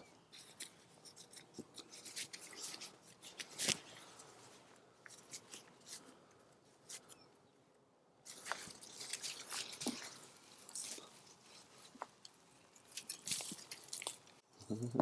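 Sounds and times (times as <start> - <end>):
hands rustling through dry mulch: 8.3 - 14.4.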